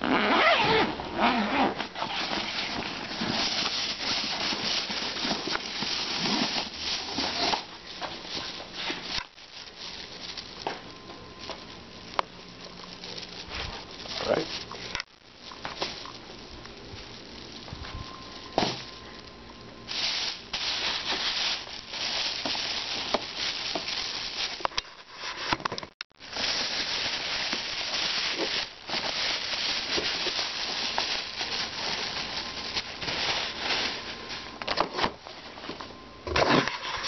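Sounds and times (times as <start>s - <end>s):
packaging rustling: 0.3s - 19.2s, 19.9s - 25.5s, 26.2s - 35.2s.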